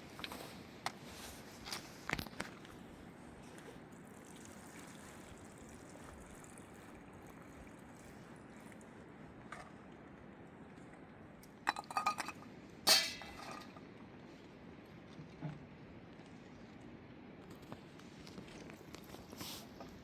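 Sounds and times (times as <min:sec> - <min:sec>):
dishes clinking: 0:11.7 - 0:13.8.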